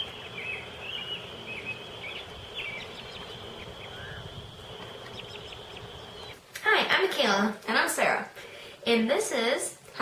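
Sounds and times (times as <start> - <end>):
birds chirping: 0.0 - 6.4
background hiss: 0.0 - 10.0.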